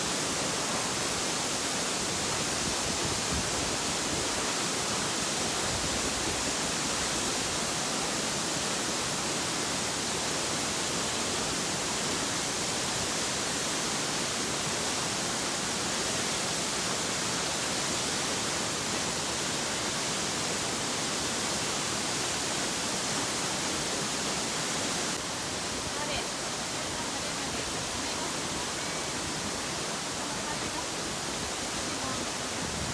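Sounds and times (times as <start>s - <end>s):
waterfall rushing: 0.0s - 32.9s.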